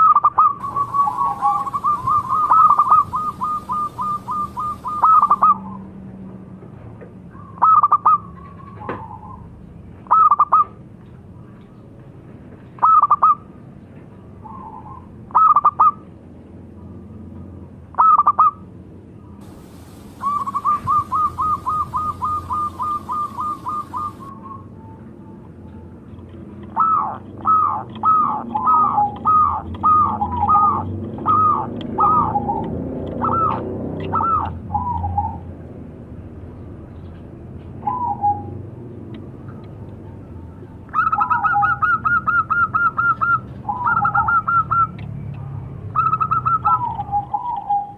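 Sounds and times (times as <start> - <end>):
dove cooing: 0.0 - 5.7, 19.4 - 24.6, 26.8 - 32.6, 33.2 - 35.4
rapid staccato bird notes: 19.6 - 24.3.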